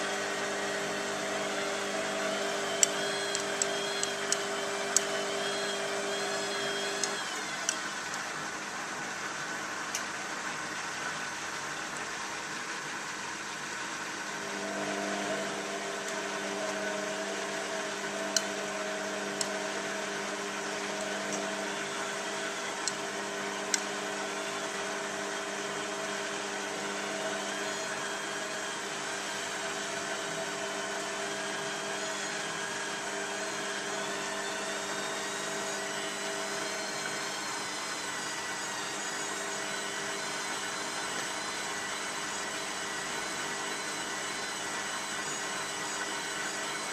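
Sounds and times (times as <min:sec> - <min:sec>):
motor hum: 0:00.0 - 0:46.9
sharp clicks: 0:02.6 - 0:05.2, 0:06.1 - 0:08.2.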